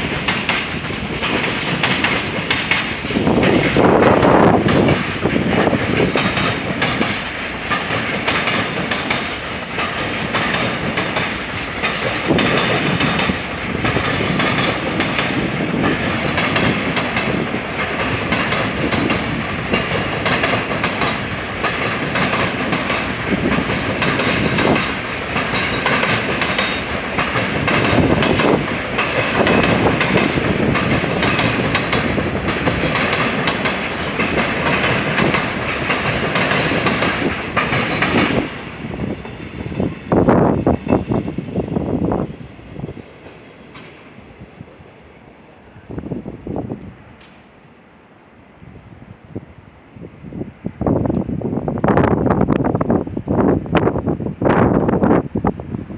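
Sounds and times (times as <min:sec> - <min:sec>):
freight train wheels clattering: 0:00.0 - 0:44.2
train low rumble: 0:00.0 - 0:55.9.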